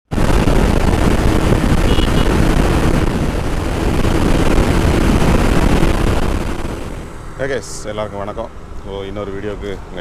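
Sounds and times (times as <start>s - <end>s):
motorcycle engine and road noise: 0.0s - 10.0s
wind buffeting microphone: 0.1s - 7.4s.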